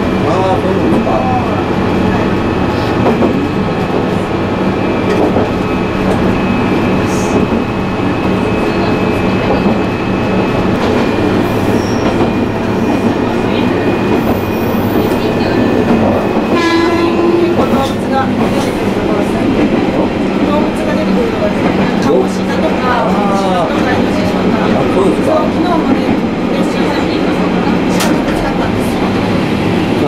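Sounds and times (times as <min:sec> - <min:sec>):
train wheels on rails: 0:00.0 - 0:30.0
train horn: 0:16.5 - 0:17.8.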